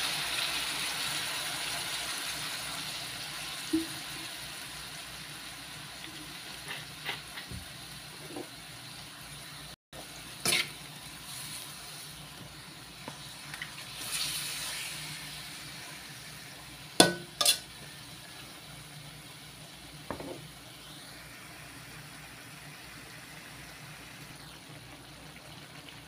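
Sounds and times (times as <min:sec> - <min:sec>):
meat sizzling in a wok: 0:00.0 - 0:26.0
metal spatula scraping a pan: 0:10.4 - 0:11.7, 0:17.0 - 0:17.9.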